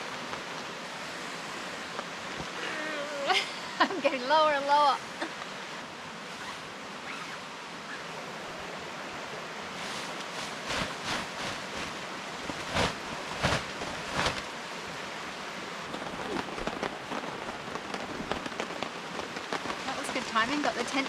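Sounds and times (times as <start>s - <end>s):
tent thumps and rustles: 9.8s - 14.5s, 15.9s - 20.9s
steady rushing background: 9.8s - 21.0s
raindrops tapping: 10.1s - 14.5s, 15.8s - 21.0s.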